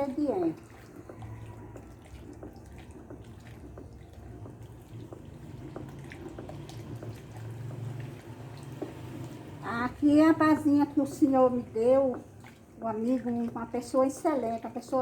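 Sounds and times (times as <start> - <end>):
liquid sloshing: 0.0 - 15.0
paddle clicking against container: 0.1 - 9.6.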